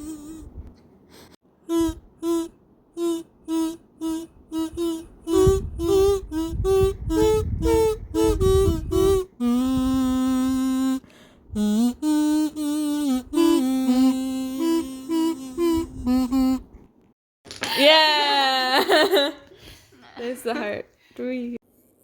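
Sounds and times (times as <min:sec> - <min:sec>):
kazoo playing a tune: 0:00.0 - 0:00.6, 0:01.6 - 0:16.8.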